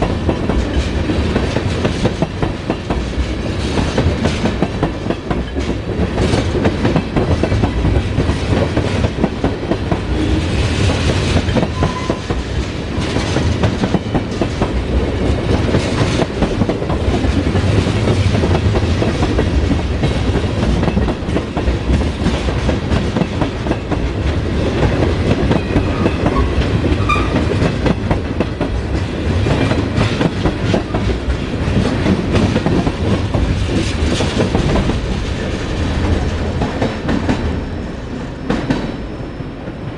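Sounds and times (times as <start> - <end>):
freight train rolling past: 0.0 - 39.9
train wheels clattering on rails: 0.0 - 39.9.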